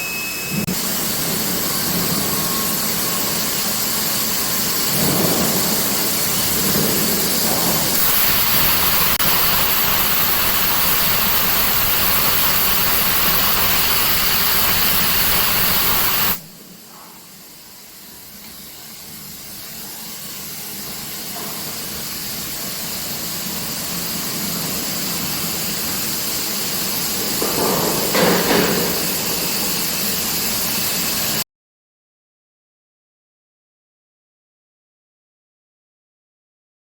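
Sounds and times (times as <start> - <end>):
industrial equipment hissing: 0.0 - 31.4.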